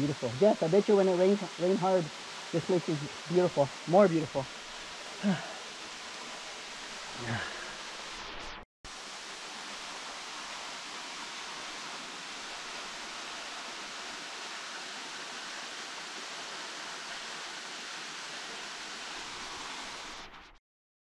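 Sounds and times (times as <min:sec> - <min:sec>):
waterfall splashing into stream: 0:08.9 - 0:20.3.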